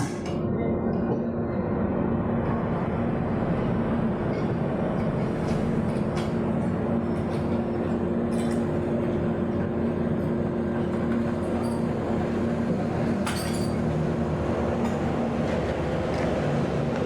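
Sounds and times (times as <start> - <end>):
light clinks: 13.3 - 13.8.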